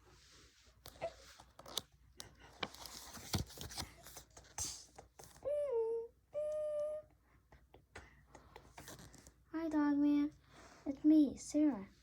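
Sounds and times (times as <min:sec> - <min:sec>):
book pages turning: 0:00.8 - 0:04.8
paper rustling: 0:02.4 - 0:04.6
child singing drawn-out notes: 0:05.4 - 0:07.1.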